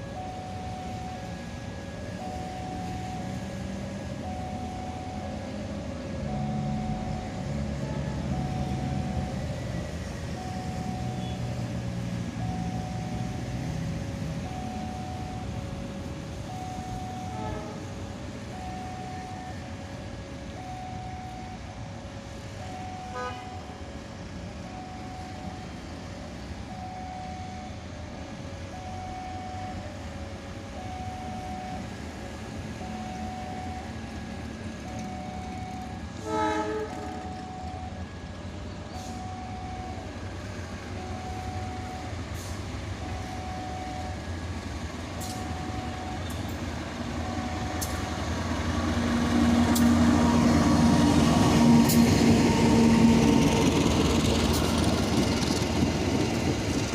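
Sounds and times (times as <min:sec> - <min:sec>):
diesel locomotive engine rumble: 0:00.0 - 0:56.9
two-tone railway warning signal: 0:00.0 - 0:56.9
train horn blast: 0:17.3 - 0:18.0, 0:23.1 - 0:23.6, 0:36.2 - 0:37.4.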